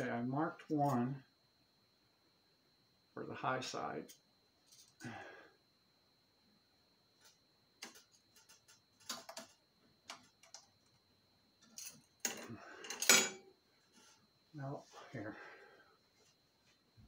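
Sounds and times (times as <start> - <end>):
small parts clicking and tapping: 7.8 - 11.0.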